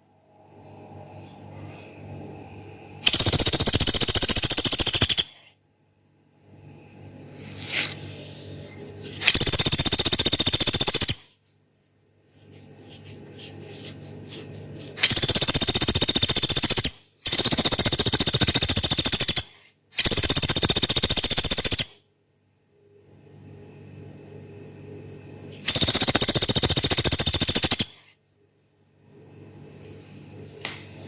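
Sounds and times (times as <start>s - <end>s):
woodpecker rattling calls: 3.0s - 5.4s, 9.2s - 11.3s, 15.0s - 21.9s, 25.7s - 28.0s.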